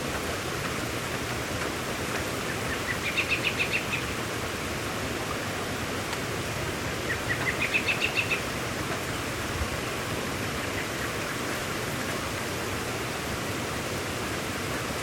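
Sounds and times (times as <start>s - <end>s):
steady rain falling: 0.0s - 15.0s
bird chirping: 2.5s - 4.1s, 7.1s - 8.5s.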